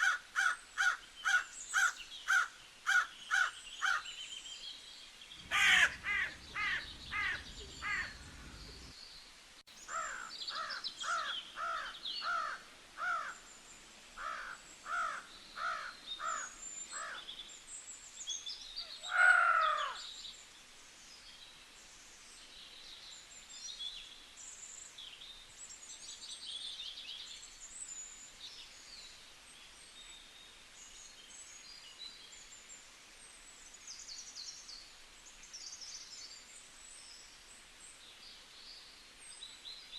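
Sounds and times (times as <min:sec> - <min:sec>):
small birds chirping: 0:00.0 - 0:20.5
bird giving short falling calls: 0:05.4 - 0:08.9.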